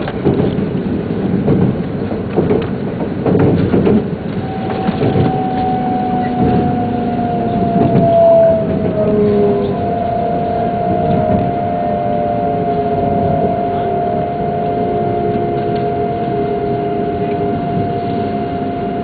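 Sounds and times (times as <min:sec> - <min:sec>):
train wheel clicks: 0:00.0 - 0:06.6
train running rumble: 0:00.0 - 0:19.0
whine falling in pitch: 0:04.3 - 0:19.0.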